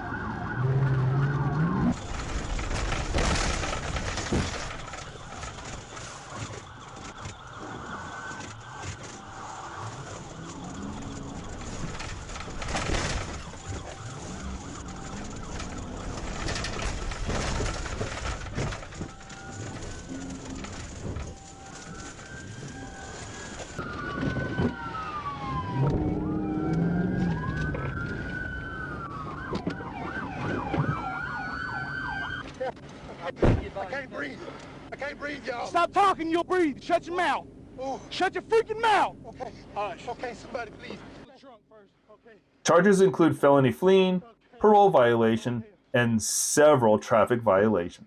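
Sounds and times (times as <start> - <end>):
police siren: 0.0 - 32.8, 35.7 - 39.8
street and engine noise: 0.0 - 41.4.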